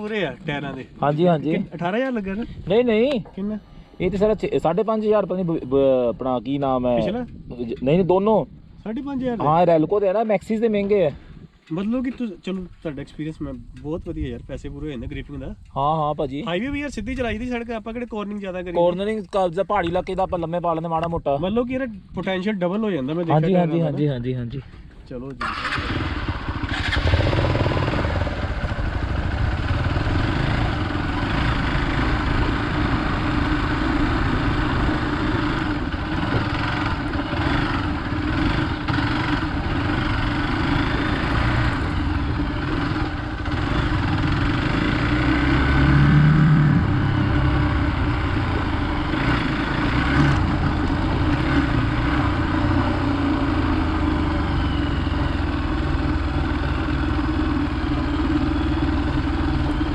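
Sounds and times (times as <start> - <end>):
motorcycle engine running: 25.4 - 59.9.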